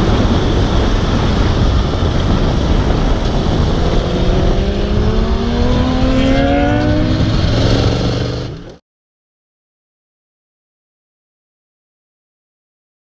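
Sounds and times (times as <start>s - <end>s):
motorcycle engine accelerating: 0.0s - 8.8s
wind noise rushing: 0.0s - 8.8s.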